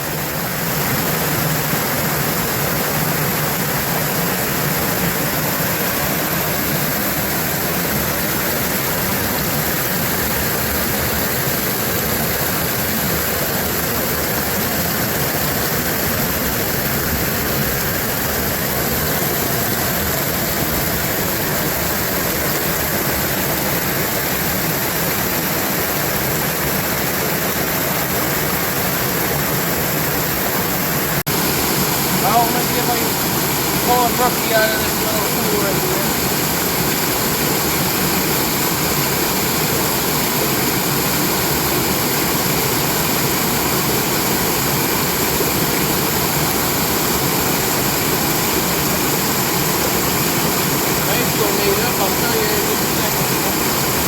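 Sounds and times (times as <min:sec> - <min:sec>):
brook pouring over waterfall: 0:00.0 - 0:54.0.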